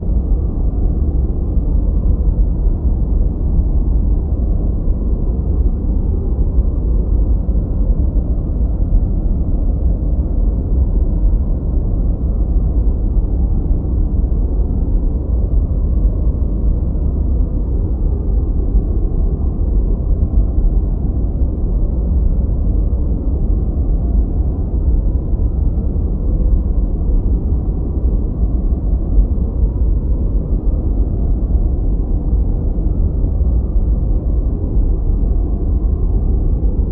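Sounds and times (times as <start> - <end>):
deep rumbling brown noise: 0.0 - 36.9.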